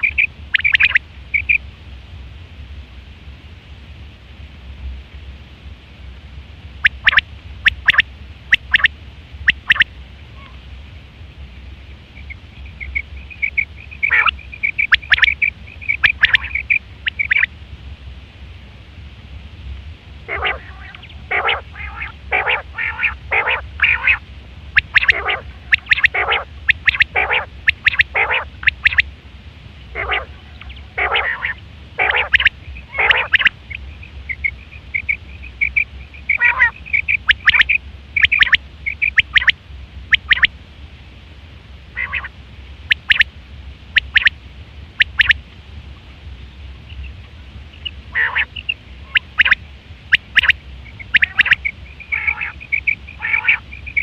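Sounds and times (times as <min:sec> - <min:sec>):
quail calling: 0:00.0 - 0:01.6, 0:06.8 - 0:08.9, 0:09.5 - 0:10.6, 0:12.2 - 0:17.5, 0:20.3 - 0:24.2, 0:24.8 - 0:29.1, 0:29.9 - 0:40.5, 0:41.9 - 0:43.3, 0:44.0 - 0:44.3, 0:45.0 - 0:45.4, 0:47.8 - 0:54.0
steady low hum: 0:00.0 - 0:54.0.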